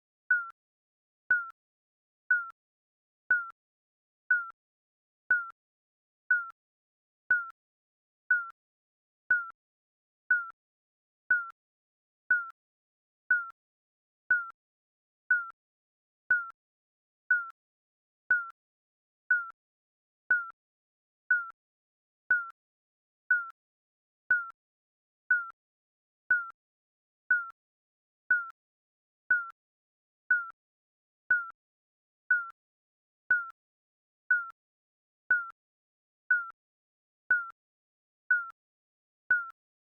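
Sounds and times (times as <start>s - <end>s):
digital timer beeps: 0.3s - 0.6s, 1.3s - 1.6s, 2.3s - 2.6s, 3.3s - 3.6s, 4.3s - 4.6s, 5.3s - 5.6s, 6.3s - 6.6s, 7.3s - 7.6s, 8.3s - 8.6s, 9.3s - 9.6s, 10.3s - 10.6s, 11.3s - 11.6s, 12.3s - 12.6s, 13.3s - 13.6s, 14.3s - 14.6s, 15.3s - 15.6s, 16.3s - 16.6s, 17.3s - 17.6s, 18.3s - 18.6s, 19.3s - 19.6s, 20.3s - 20.6s, 21.3s - 21.6s, 22.3s - 22.6s, 23.3s - 23.6s, 24.3s - 24.6s, 25.3s - 25.6s, 26.3s - 26.6s, 27.3s - 27.6s, 28.3s - 28.6s, 29.3s - 29.6s, 30.3s - 30.6s, 31.3s - 31.6s, 32.3s - 32.6s, 33.3s - 33.6s, 34.3s - 34.6s, 35.3s - 35.6s, 36.3s - 36.6s, 37.3s - 37.6s, 38.3s - 38.6s, 39.3s - 39.6s.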